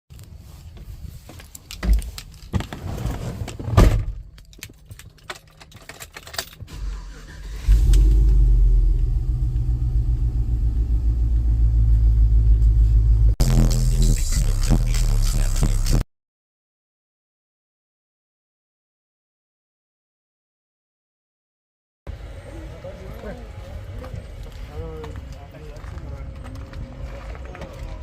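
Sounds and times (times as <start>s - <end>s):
loud deep bass: 7.7s - 16.0s.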